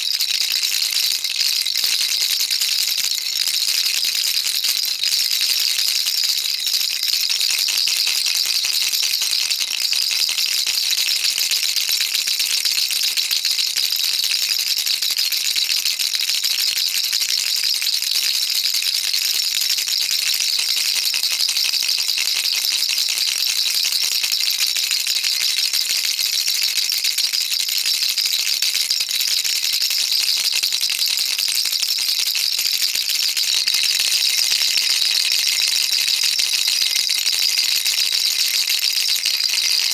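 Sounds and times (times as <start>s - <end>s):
baby rattle shaken: 33.4s - 37.7s.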